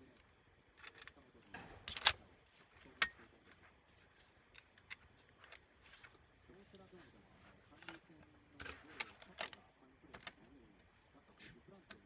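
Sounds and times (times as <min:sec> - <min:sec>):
laptop parts clicking and snapping: 0:00.0 - 0:03.2.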